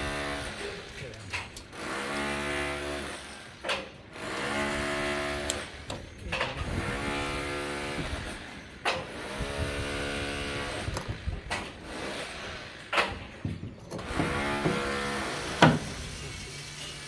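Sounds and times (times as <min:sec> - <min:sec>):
power tool running: 0:01.7 - 0:17.0
sharp knocks: 0:13.0 - 0:16.0.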